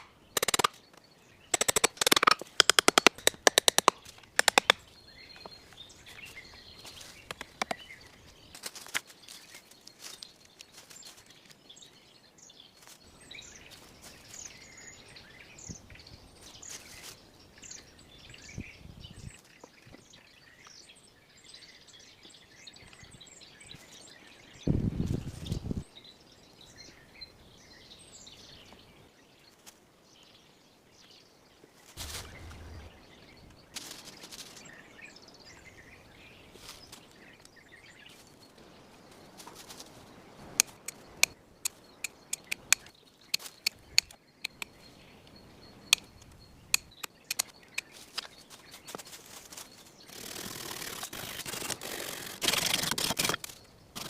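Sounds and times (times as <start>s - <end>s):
sharp irregular clicks and knocks: 0.0s - 0.8s, 1.5s - 4.8s, 7.3s - 7.8s, 40.6s - 44.7s, 45.9s - 48.4s
small birds chirping: 0.0s - 54.0s.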